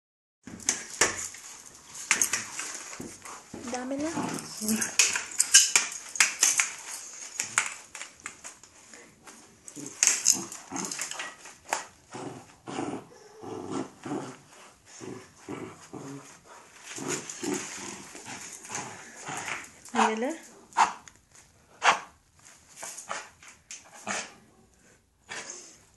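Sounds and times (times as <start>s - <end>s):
clicks and rustles: 0.4s - 12.0s
dog growling and whining: 12.1s - 16.4s.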